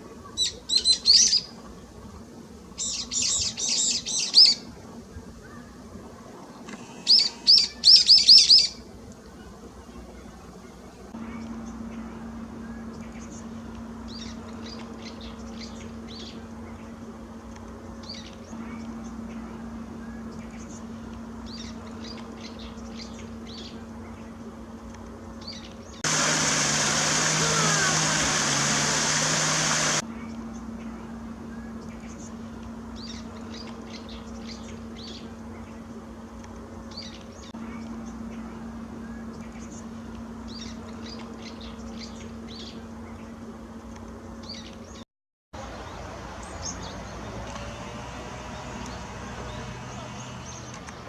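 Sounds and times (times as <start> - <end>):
low steady hum: 0.0 - 45.0
small birds chirping: 2.8 - 4.6, 6.7 - 8.8, 30.6 - 45.0, 48.4 - 51.0
loud rushing noise: 26.0 - 30.0.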